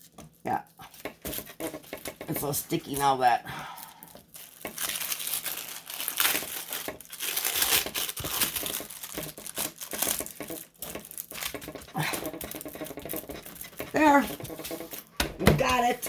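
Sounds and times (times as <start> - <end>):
sticky plastic crinkling when peeled: 0.0 - 16.0.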